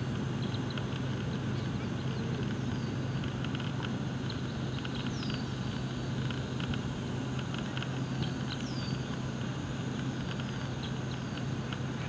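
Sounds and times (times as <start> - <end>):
low background hum: 0.0 - 12.0
faint bird chirps: 4.2 - 5.6, 7.6 - 9.2.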